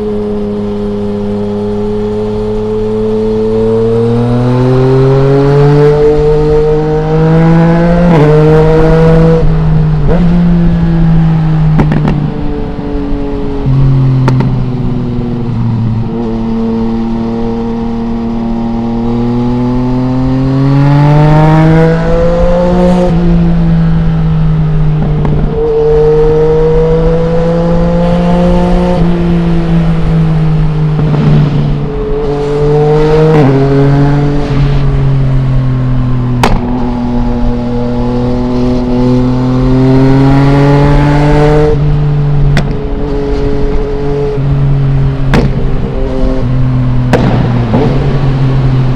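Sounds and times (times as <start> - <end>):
motorcycle engine accelerating: 0.0 - 48.9
exhaust cracks: 45.2 - 45.9, 47.1 - 48.9.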